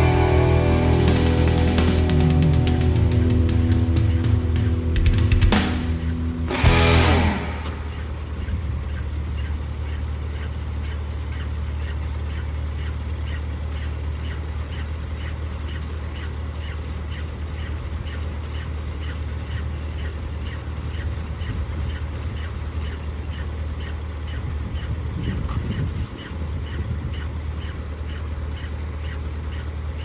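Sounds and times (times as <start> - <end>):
combine harvester engine drone: 0.0 - 9.2.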